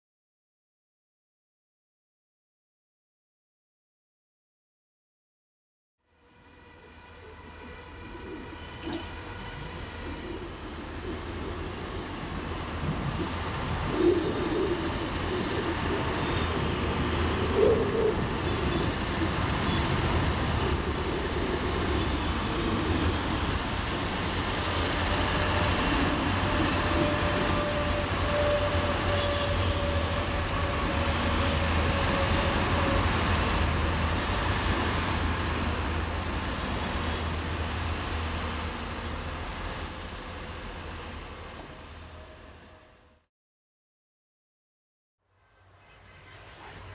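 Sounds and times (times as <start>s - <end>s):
rail noise: 6.1s - 43.3s, 45.3s - 46.9s
train engine hum: 6.1s - 43.3s, 45.3s - 46.9s.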